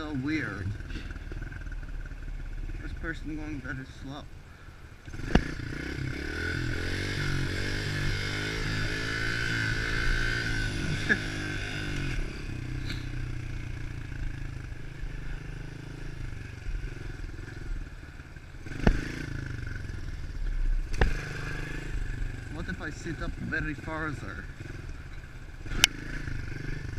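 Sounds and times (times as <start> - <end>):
motorbike engine revving: 0.0 - 4.1, 5.0 - 26.9
sharp knocks: 18.8 - 19.1.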